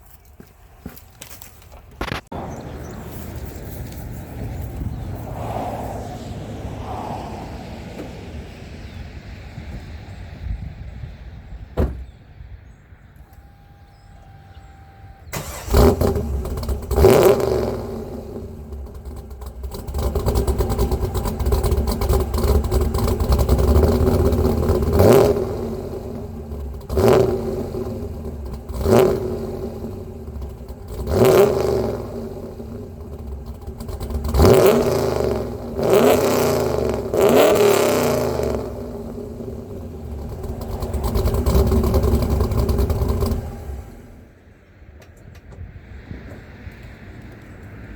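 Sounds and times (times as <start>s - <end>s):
car engine starting and idling: 1.8s - 47.9s
engine revving: 14.2s - 44.3s.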